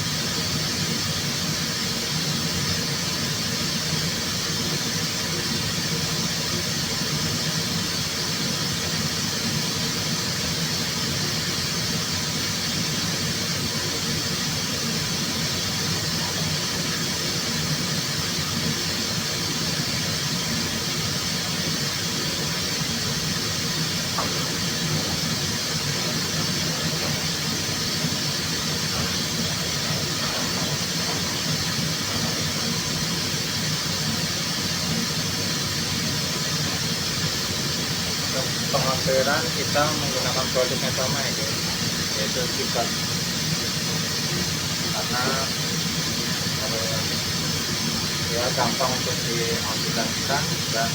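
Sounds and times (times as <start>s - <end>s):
spray booth air rushing and humming: 0.0s - 50.9s.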